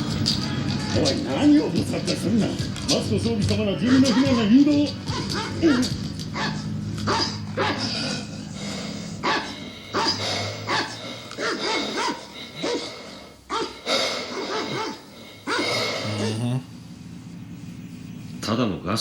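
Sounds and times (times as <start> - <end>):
dog barking: 3.8 - 8.3, 9.2 - 16.5.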